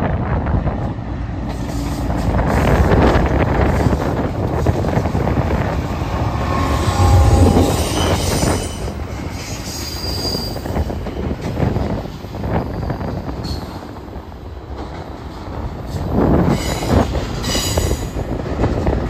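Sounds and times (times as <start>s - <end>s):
locomotive rumble: 0.4s - 9.6s
steel wheels squealing on rail: 1.6s - 14.0s, 15.4s - 19.0s.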